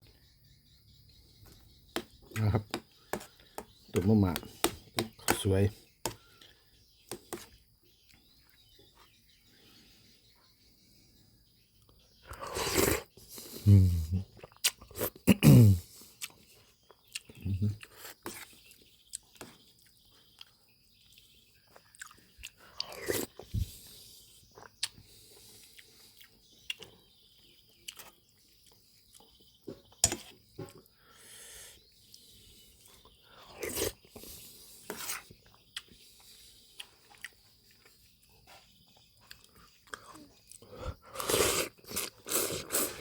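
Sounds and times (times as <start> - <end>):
person chewing and crunching: 14.4 - 15.4, 16.1 - 23.5, 24.5 - 25.0, 27.8 - 29.4, 33.4 - 43.0.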